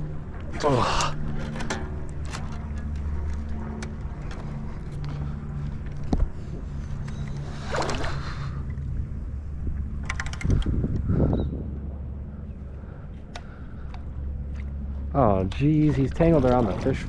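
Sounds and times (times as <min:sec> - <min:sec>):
steady low hum: 0:00.0 - 0:17.0
water sloshing against hull: 0:00.1 - 0:17.0
tackle clicks: 0:10.0 - 0:11.1.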